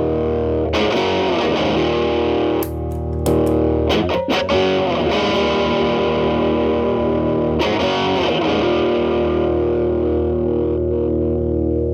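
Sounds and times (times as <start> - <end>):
electric guitar chords ringing: 0.0 - 11.9.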